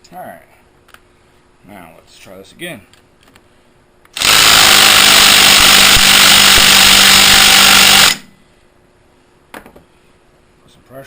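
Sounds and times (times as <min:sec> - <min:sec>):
impact wrench hammering: 0:04.2 - 0:08.3.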